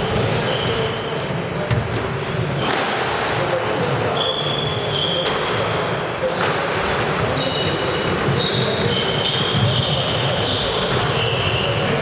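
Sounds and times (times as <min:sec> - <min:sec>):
shoe squeak on court floor: 0:00.4 - 0:01.2, 0:04.1 - 0:05.6, 0:07.3 - 0:12.0.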